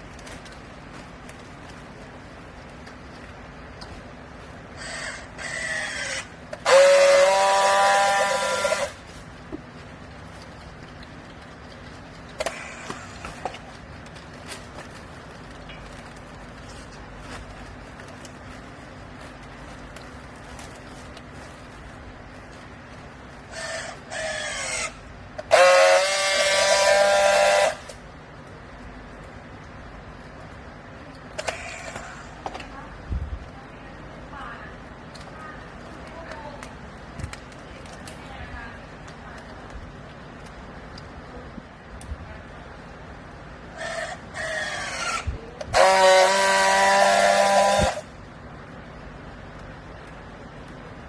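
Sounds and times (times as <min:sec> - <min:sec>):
low steady hum: 0:00.0 - 0:51.0
horn blasts: 0:06.6 - 0:09.0, 0:25.5 - 0:28.0, 0:45.7 - 0:48.1.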